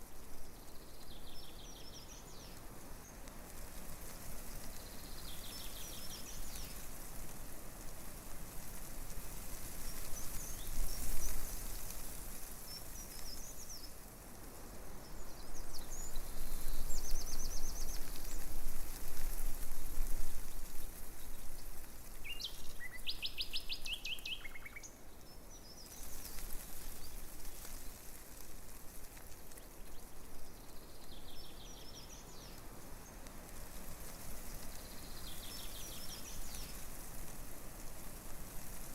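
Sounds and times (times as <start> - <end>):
wind rustling tree leaves: 0.0 - 38.9
small birds chirping and trilling: 0.4 - 3.3, 4.4 - 7.0, 20.7 - 37.0.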